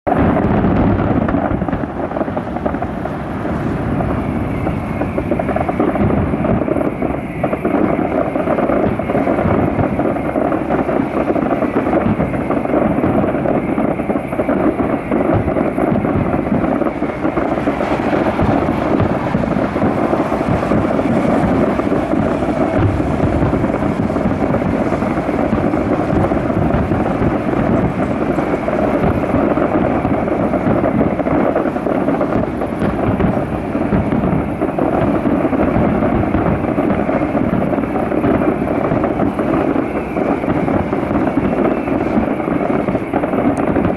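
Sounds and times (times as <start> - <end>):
distant fireworks barrage rumble: 0.0 - 43.9.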